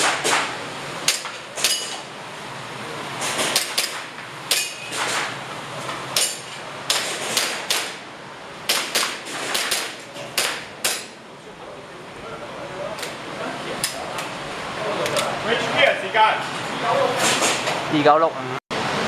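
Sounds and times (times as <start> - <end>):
airsoft pistol shots: 8.7 - 11.1.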